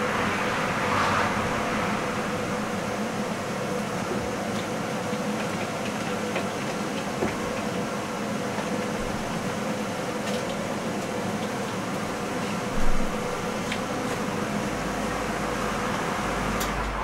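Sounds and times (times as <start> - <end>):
forge rushing with low hum: 0.0 - 4.4.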